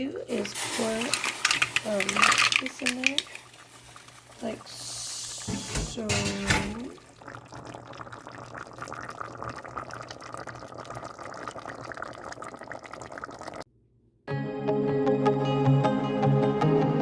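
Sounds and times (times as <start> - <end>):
liquid bubbling in cooking pot: 0.8 - 13.7
music: 14.3 - 17.0.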